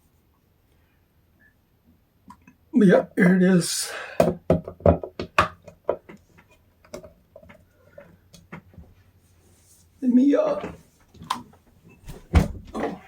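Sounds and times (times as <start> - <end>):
hard objects knocking and clicking: 4.2 - 8.7.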